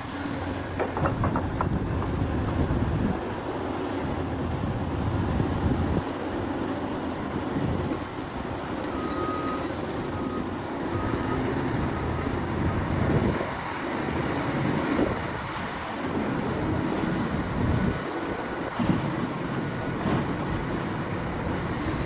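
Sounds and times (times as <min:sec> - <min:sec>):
excavator engines under load: 0:00.0 - 0:22.0
faint short beeps: 0:08.9 - 0:11.5.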